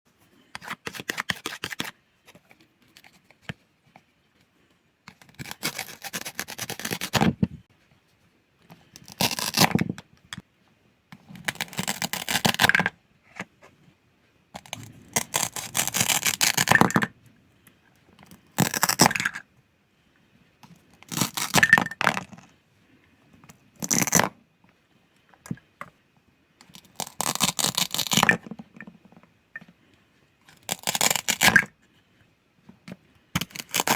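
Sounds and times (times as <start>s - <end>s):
toy food being cut: 5.2s - 7.2s, 14.6s - 17.1s, 26.7s - 28.4s, 30.6s - 31.7s, 33.4s - 33.9s.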